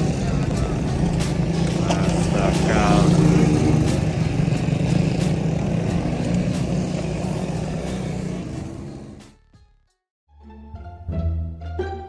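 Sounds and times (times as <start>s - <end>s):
small motorbike engine running: 0.0s - 9.2s.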